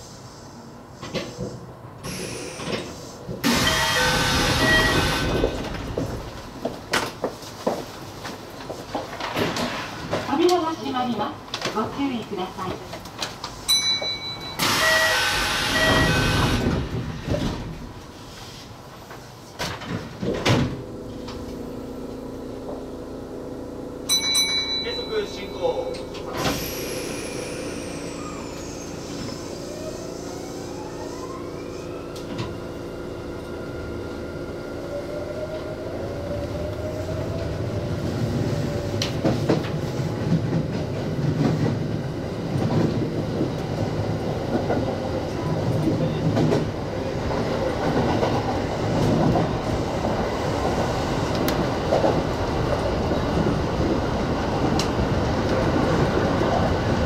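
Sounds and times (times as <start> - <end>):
wheels rumbling on rail: 0.0 - 57.0
electric train motor whine: 3.4 - 5.9, 14.6 - 17.0, 26.0 - 37.1.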